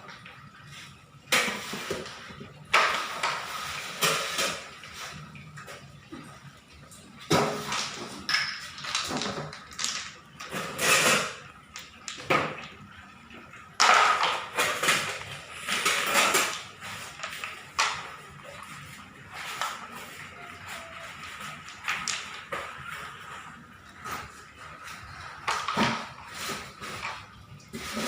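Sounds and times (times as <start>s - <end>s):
stones clattering on toy truck: 7.6s - 12.3s.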